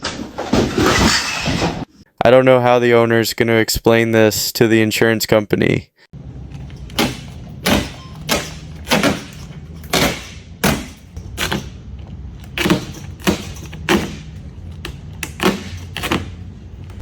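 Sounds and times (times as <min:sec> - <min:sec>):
steady low hum: 0:06.2 - 0:17.0.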